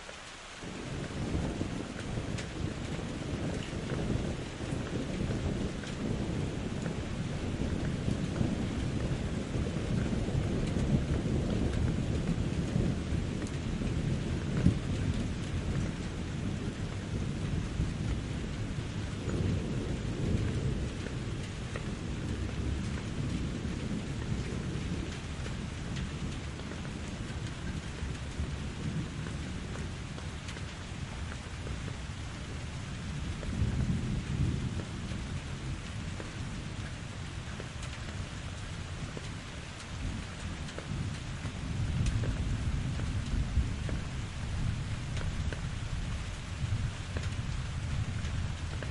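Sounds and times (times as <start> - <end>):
rain falling in a forest: 0.0 - 48.9
low rolling thunder: 0.6 - 48.9.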